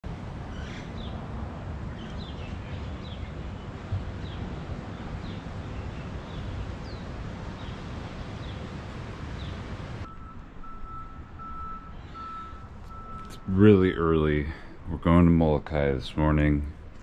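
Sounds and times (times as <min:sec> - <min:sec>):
wind: 0:00.0 - 0:17.0
birds chirping: 0:00.3 - 0:14.8
electronic beeping tone: 0:10.1 - 0:13.6.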